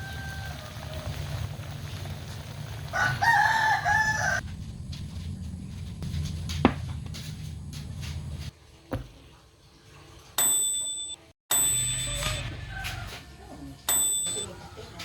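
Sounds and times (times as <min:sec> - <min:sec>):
rooster crowing: 0:00.0 - 0:01.5, 0:02.9 - 0:04.4, 0:12.2 - 0:13.5
steady low hum: 0:04.4 - 0:08.5.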